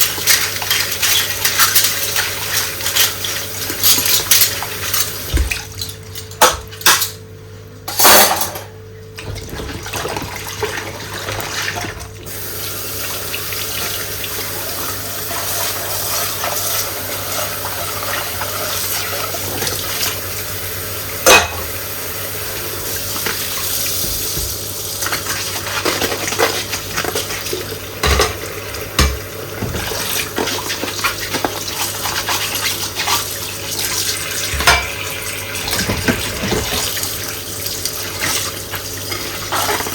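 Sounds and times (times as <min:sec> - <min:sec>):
tap running: 0:00.1 - 0:06.7, 0:11.8 - 0:31.7, 0:34.4 - 0:39.2
dishes clinking: 0:07.9 - 0:08.8, 0:21.2 - 0:21.7, 0:28.0 - 0:28.4, 0:34.6 - 0:35.0.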